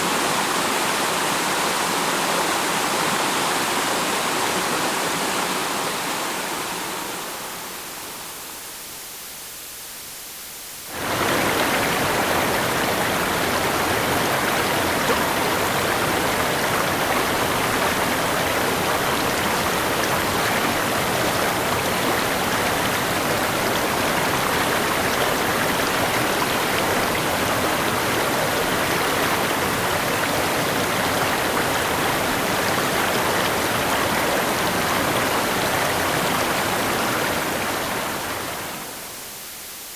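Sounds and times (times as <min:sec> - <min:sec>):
rushing river water: 0:10.9 - 0:39.2.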